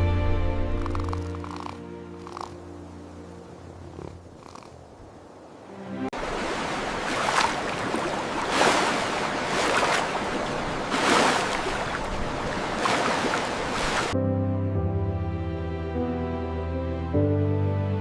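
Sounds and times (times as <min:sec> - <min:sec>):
ocean waves breaking: 0:00.8 - 0:14.2.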